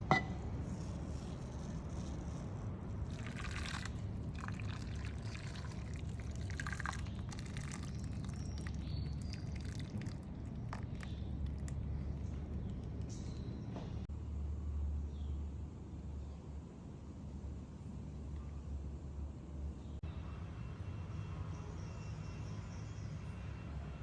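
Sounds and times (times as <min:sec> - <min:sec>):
short knocks and clinks: 0:00.0 - 0:00.4
steady low hum: 0:00.0 - 0:20.0
liquid pouring: 0:00.7 - 0:13.0.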